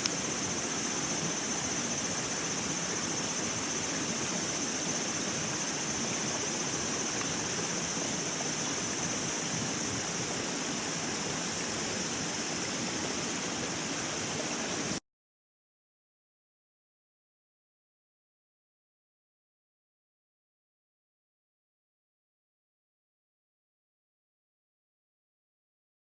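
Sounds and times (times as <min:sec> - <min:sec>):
high-pitched hiss: 0:00.0 - 0:15.0
rushing water noise: 0:00.0 - 0:15.0.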